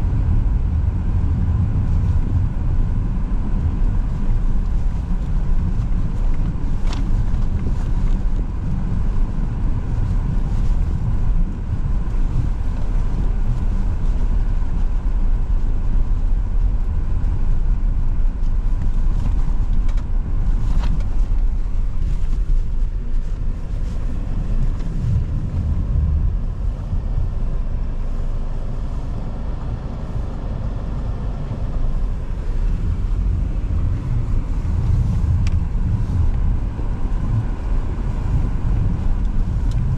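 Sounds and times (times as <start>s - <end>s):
car tyre and engine rumble: 0.0s - 39.9s.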